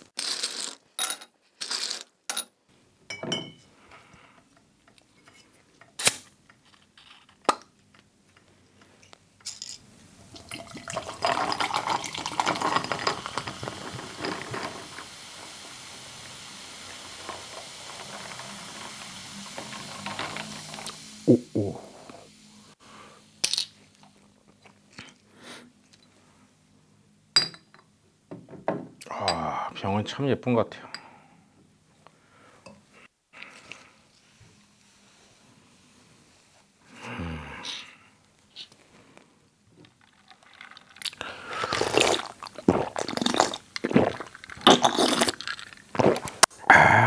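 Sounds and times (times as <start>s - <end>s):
person drinking soft drink: 10.4s - 15.0s, 16.3s - 22.4s, 29.0s - 29.7s, 40.1s - 47.0s
hiss-like breath: 15.1s - 23.4s
person sipping and swallowing: 20.9s - 22.3s, 41.0s - 47.0s
wet mouth sound: 21.3s - 22.3s, 41.0s - 47.0s.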